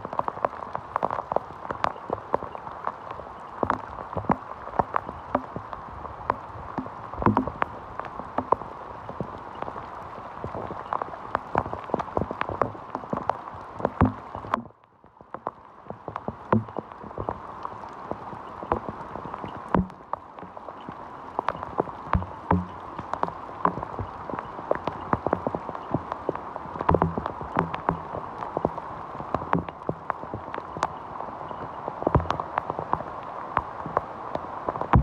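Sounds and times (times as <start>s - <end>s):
heavy rain: 0.0s - 14.6s, 15.2s - 35.0s.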